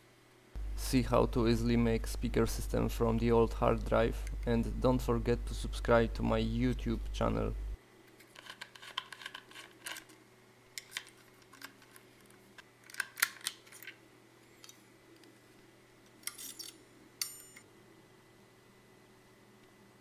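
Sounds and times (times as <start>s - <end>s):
small metal parts clicking: 16.2s - 17.6s.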